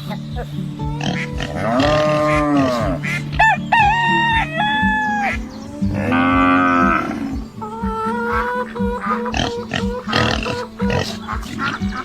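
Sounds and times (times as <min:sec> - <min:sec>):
background music with steady beat: 0:00.0 - 0:12.0
chickens calling: 0:00.0 - 0:12.0
cattle mooing: 0:01.0 - 0:03.1, 0:06.0 - 0:07.4
rooster crowing: 0:03.4 - 0:05.4.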